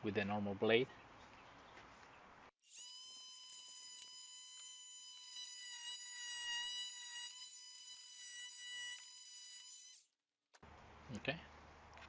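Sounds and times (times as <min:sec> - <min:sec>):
oscillating multi-tool whining: 0:02.6 - 0:10.2.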